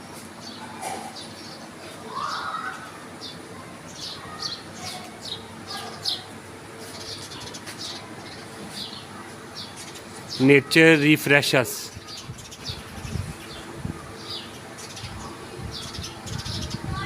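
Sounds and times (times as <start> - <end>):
small birds chirping: 0.2 - 17.0.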